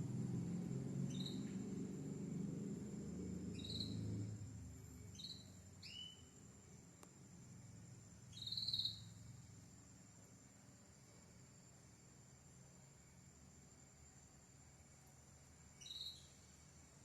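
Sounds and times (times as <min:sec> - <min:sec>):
canary chirping: 0:01.1 - 0:01.5, 0:03.6 - 0:04.0, 0:08.3 - 0:09.1.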